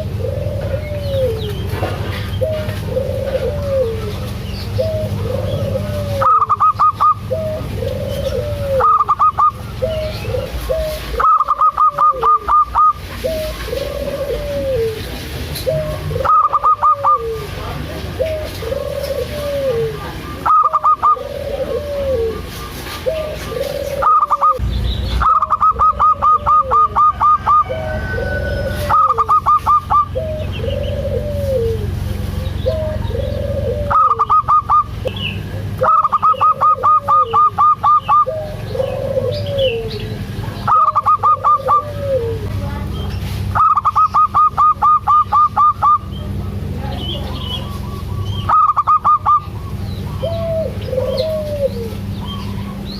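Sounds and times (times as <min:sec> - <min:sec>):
doves cooing: 0:00.0 - 0:52.9
low hum: 0:23.2 - 0:52.9
rapid staccato bird notes: 0:24.0 - 0:27.6.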